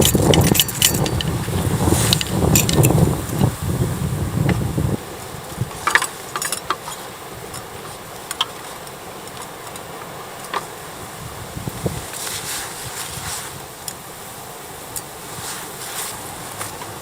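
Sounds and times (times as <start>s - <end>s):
light clicks and knocks: 5.6s - 10.8s.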